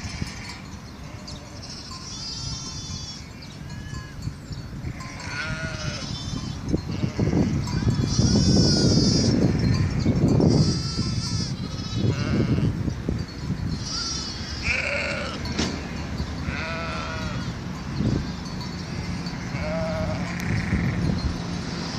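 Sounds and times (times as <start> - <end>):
sheep bleating: 0.0 - 4.2, 4.9 - 9.4, 10.5 - 12.8, 13.8 - 15.5, 16.4 - 17.5, 18.9 - 21.0.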